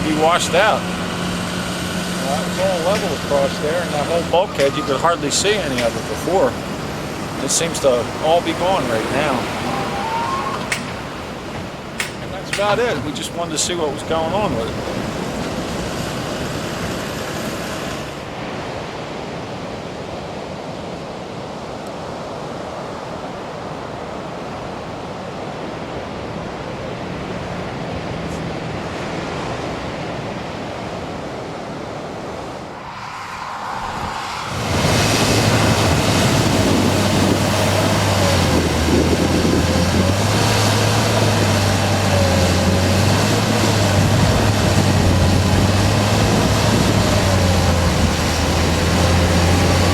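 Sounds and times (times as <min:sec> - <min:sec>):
wavering whine: 0:00.0 - 0:14.8, 0:32.3 - 0:49.9
mechanical engine hum: 0:00.0 - 0:18.2, 0:32.7 - 0:49.9
ocean surf: 0:00.0 - 0:49.9
wind on microphone: 0:25.7 - 0:49.9.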